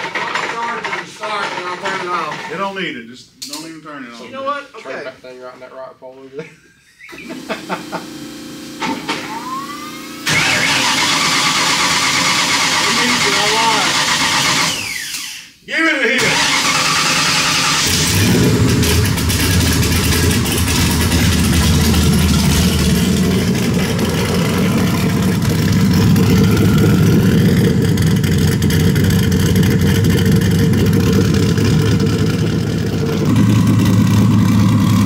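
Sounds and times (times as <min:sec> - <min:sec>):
car engine idling: 0:16.2 - 0:35.0.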